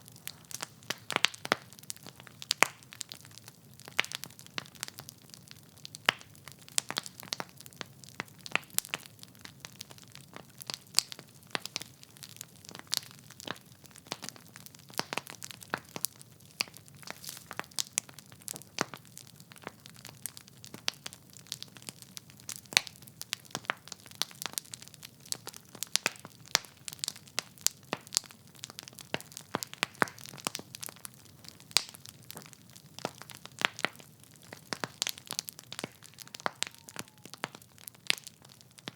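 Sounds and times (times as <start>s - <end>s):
logs crackling and popping: 0.0s - 38.9s
hiss of flames: 17.0s - 17.6s.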